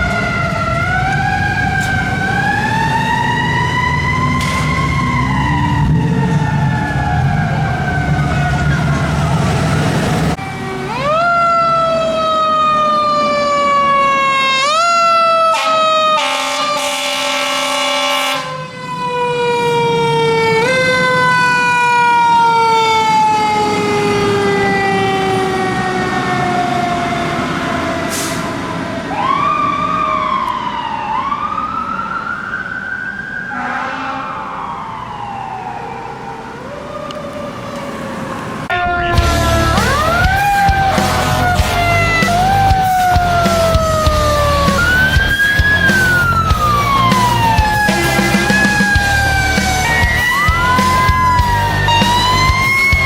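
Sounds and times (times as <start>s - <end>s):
fire truck siren: 0.0s - 53.0s
second siren wailing: 0.0s - 53.0s
horn blast: 15.4s - 18.6s, 33.5s - 34.6s, 38.8s - 53.0s.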